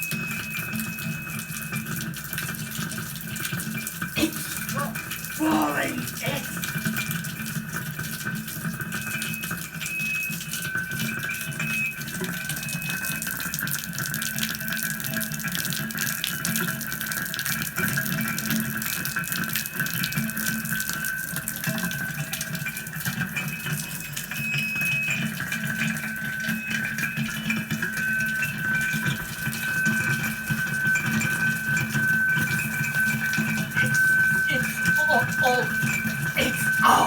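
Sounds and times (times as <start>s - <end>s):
water running: 2.3s - 7.6s, 27.0s - 37.0s
held high tone: 4.2s - 6.7s, 32.1s - 37.0s.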